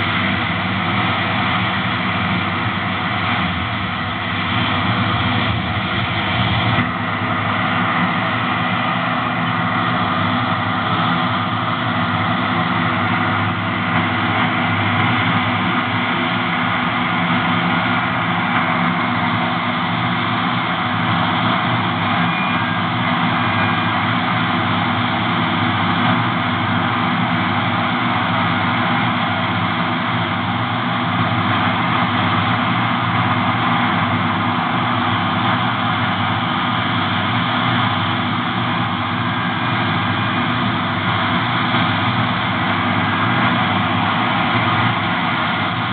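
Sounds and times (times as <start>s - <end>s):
diesel engine running steadily: 0.0s - 45.9s.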